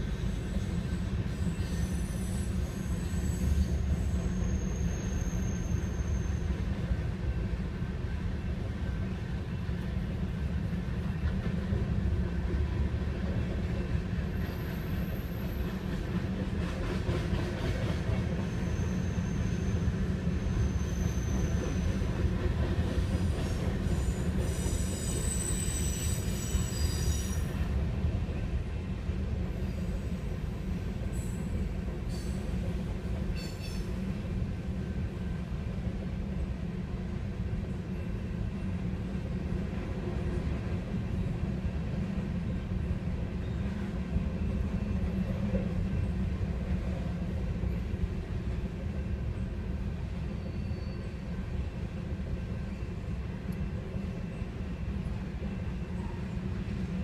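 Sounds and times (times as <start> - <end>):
train wheels rumbling on rail: 0.0 - 57.0
high-pitched wheel squeals: 0.2 - 6.5, 23.9 - 27.5.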